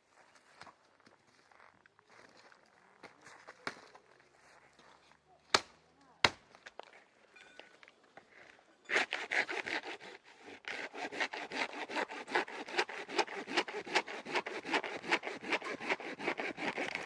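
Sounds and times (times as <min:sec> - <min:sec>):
hand saw cutting wood: 0:08.9 - 0:17.0.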